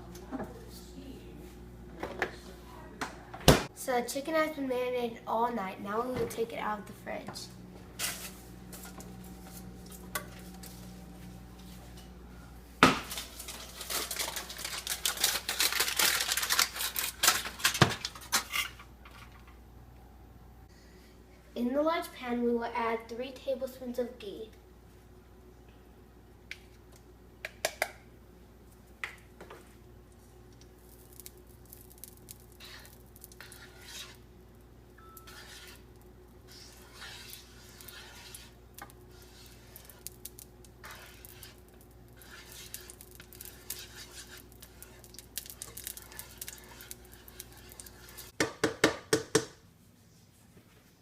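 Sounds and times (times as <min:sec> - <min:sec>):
faint steady hum: 0:00.0 - 0:48.4
metal utensil scraping a pan: 0:32.6 - 0:34.2, 0:35.0 - 0:35.9, 0:36.5 - 0:40.1, 0:40.8 - 0:41.6, 0:42.2 - 0:48.4.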